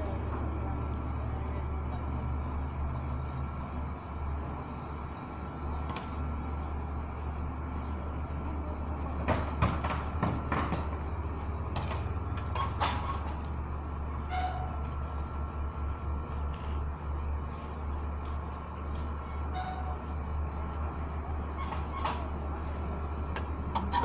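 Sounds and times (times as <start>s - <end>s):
sharp knocks and clanks: 9.2s - 11.0s.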